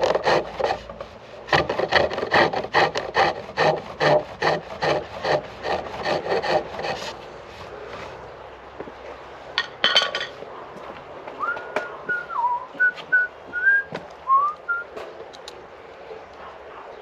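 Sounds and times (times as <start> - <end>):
hand tools clattering on wood: 9.6 - 10.4
person whistling a tune: 11.4 - 14.8.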